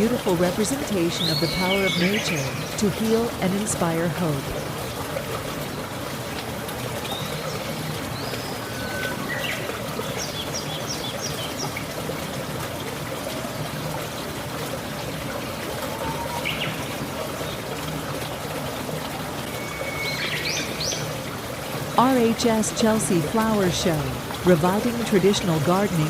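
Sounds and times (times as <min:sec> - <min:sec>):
water trickling: 0:00.0 - 0:26.0
small birds chirping: 0:01.0 - 0:03.3.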